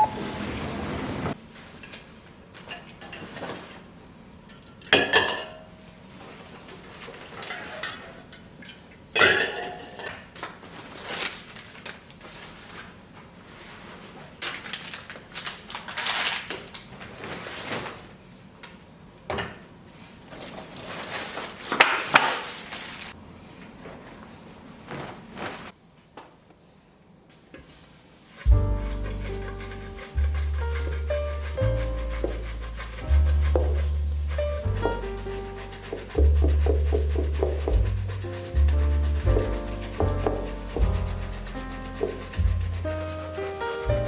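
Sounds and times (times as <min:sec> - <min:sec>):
dishes and utensils clinking: 0:04.5 - 0:05.7.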